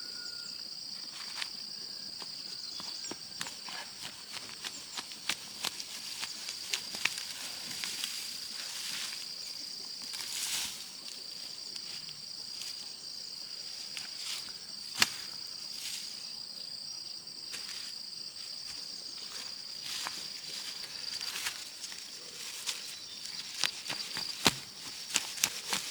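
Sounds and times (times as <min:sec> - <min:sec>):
insect chirring: 0:00.0 - 0:25.9.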